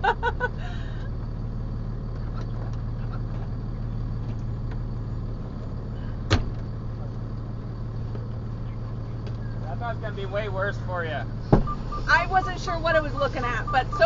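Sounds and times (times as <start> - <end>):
truck engine idling: 0.0 - 14.0
cab door shutting: 6.3 - 6.6, 11.4 - 12.1.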